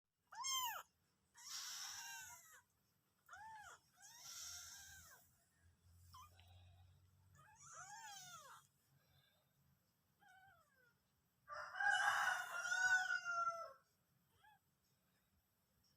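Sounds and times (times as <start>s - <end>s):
kitten meowing: 0.3s - 2.6s, 3.3s - 5.2s, 7.4s - 8.6s.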